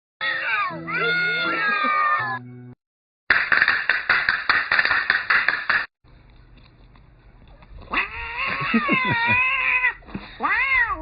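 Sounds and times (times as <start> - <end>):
cat meowing: 7.9 - 11.0.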